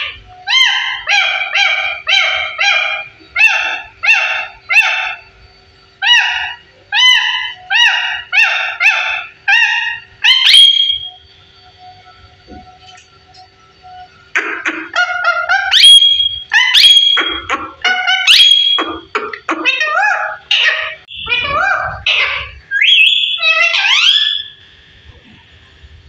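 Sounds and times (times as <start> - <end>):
parrot calling: 0.0 - 5.3, 6.0 - 11.2, 13.9 - 24.6.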